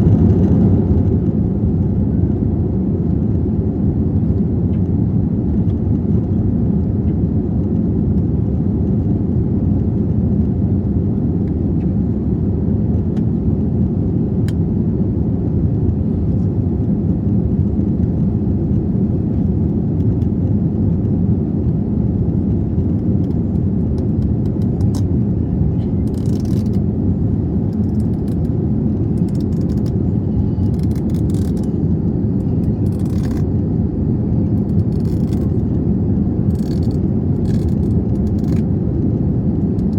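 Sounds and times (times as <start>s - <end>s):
jet engine rumble in cabin: 0.0s - 39.9s
faint rattles and clicks: 22.8s - 25.1s, 26.0s - 26.8s, 27.7s - 28.6s, 29.2s - 31.8s, 32.4s - 33.5s, 34.5s - 35.7s, 36.5s - 38.6s.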